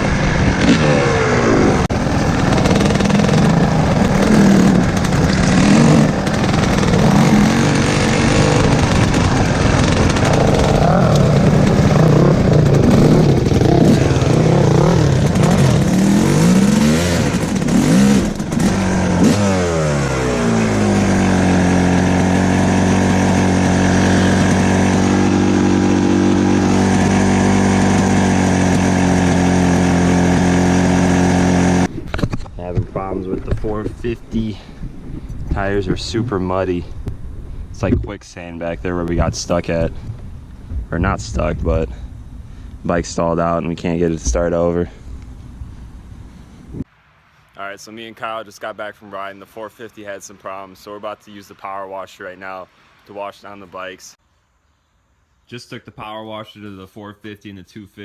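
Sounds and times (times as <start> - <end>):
dirt bike engine revving: 0.0 - 31.9.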